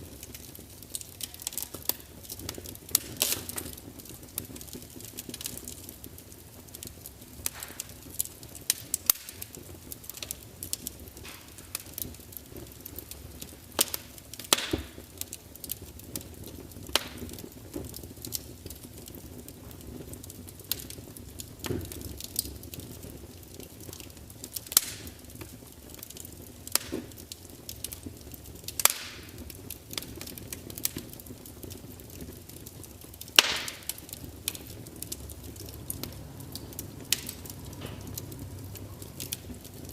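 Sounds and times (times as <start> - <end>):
burning logs crackling and popping: 0.0 - 39.9
fire flames rumbling: 0.0 - 39.9.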